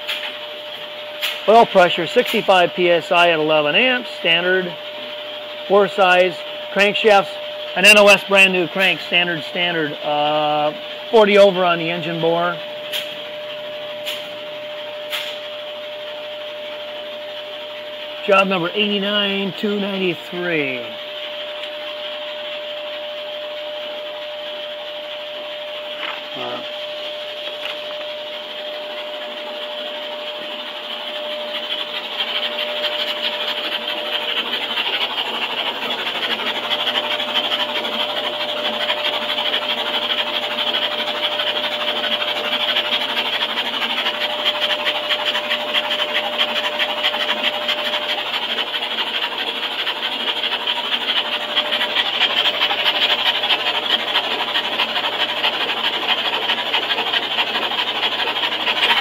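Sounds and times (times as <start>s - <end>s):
vee eight engine running: 26.4s - 59.0s.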